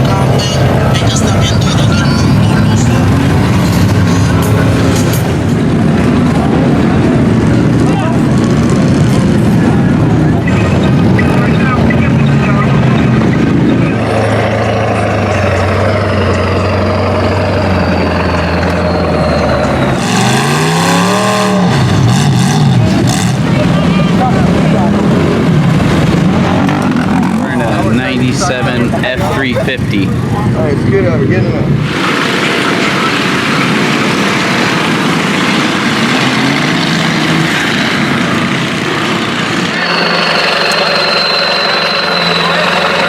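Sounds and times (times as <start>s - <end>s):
loud even noise: 0.0s - 30.2s, 31.6s - 43.0s
truck engine revving: 0.0s - 43.0s.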